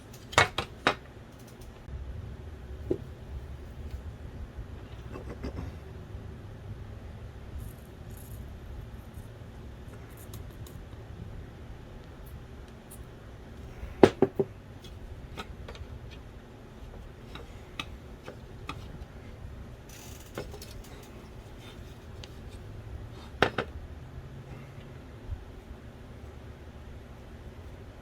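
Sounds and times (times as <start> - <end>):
small hard parts clicking: 0.0 - 1.9, 19.9 - 22.4.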